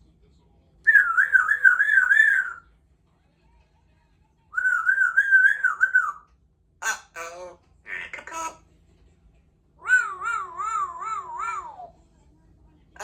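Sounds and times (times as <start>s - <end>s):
parrot warbling whistles: 0.9s - 2.6s, 4.6s - 6.2s, 9.8s - 11.9s.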